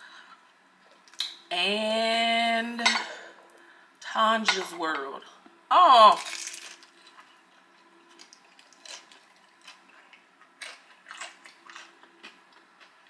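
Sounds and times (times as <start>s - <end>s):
crunchy food being chewed: 6.2s - 13.0s.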